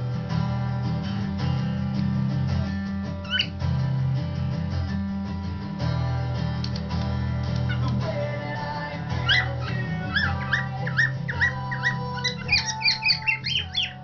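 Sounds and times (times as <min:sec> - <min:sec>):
strummed acoustic guitar: 0:00.0 - 0:14.0
cockatiel chirp: 0:03.3 - 0:03.5, 0:09.2 - 0:14.0.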